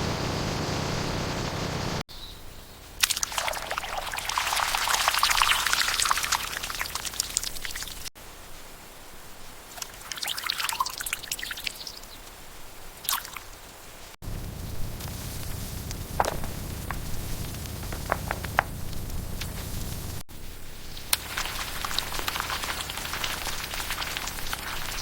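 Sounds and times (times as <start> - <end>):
low hum: 0.0 - 2.0, 14.2 - 20.2
liquid dripping: 3.0 - 8.1, 9.7 - 12.2, 13.0 - 13.6, 21.1 - 25.0
wet squishing: 3.0 - 8.1, 9.7 - 12.0, 21.1 - 25.0.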